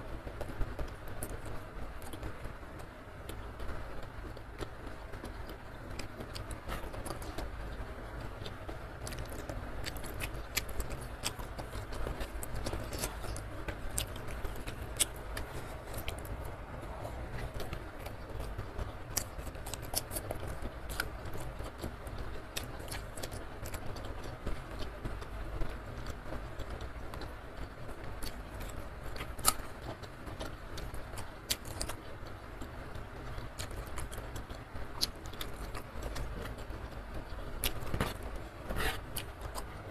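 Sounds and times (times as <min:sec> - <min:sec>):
steady low hum: 0:00.0 - 0:39.9
chewing and wet mouth sounds: 0:04.2 - 0:25.3, 0:28.0 - 0:39.9.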